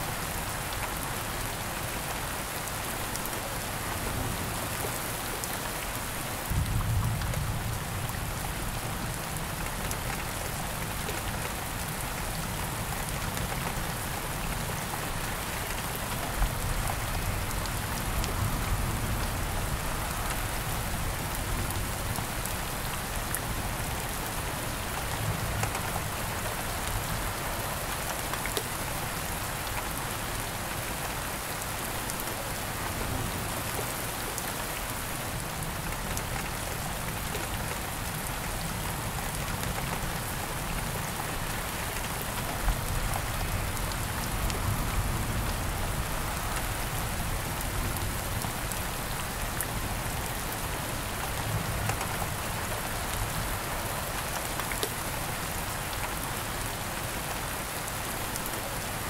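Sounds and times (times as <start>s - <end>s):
steady rain hiss: 0.0s - 59.0s
raindrops ticking on a surface: 0.1s - 59.0s.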